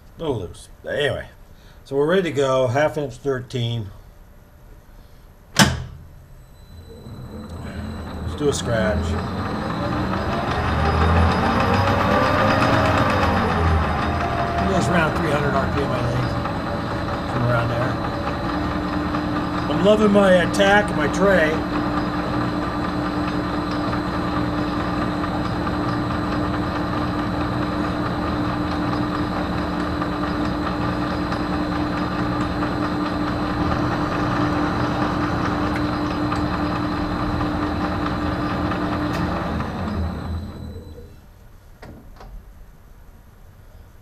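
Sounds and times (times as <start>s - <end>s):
lathe spinning down: 6.4s - 41.1s
metal lathe running: 6.6s - 41.1s.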